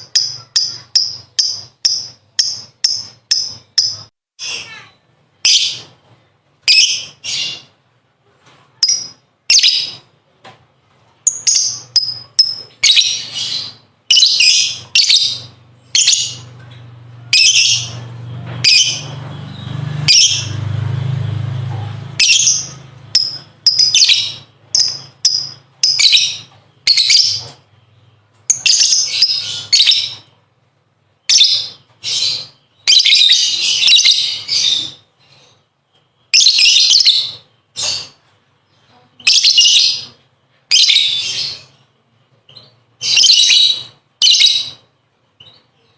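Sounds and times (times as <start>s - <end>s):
lovebird chattering: 0.0s - 4.8s, 11.2s - 16.6s, 21.8s - 27.6s, 39.2s - 41.8s.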